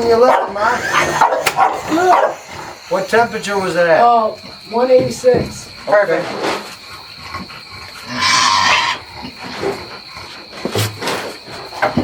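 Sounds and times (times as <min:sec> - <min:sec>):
harsh animal call: 0:00.0 - 0:04.1, 0:08.0 - 0:09.1
high-pitched insect drone: 0:00.0 - 0:12.0.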